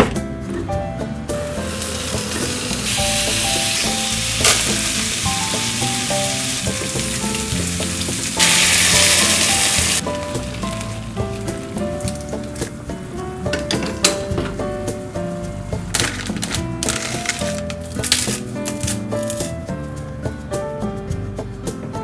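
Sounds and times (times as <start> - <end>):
soft background music: 0.0 - 22.0
food sizzling in a pan: 1.5 - 11.4.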